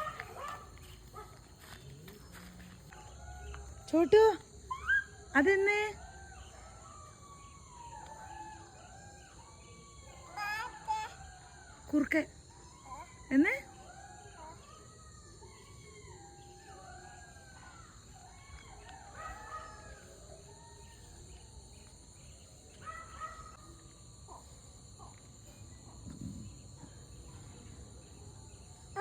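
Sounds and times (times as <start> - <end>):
jackals howling: 3.0 - 25.2.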